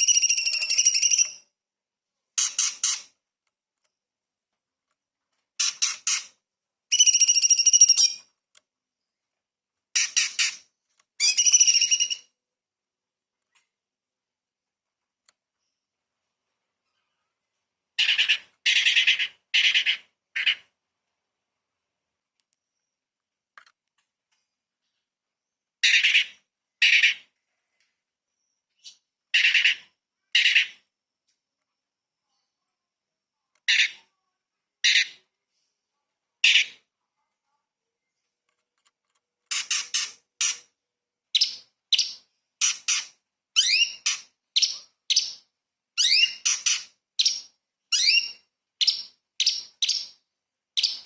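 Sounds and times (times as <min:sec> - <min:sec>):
songbird harsh rattling calls: 0:02.4 - 0:03.1, 0:39.5 - 0:40.7.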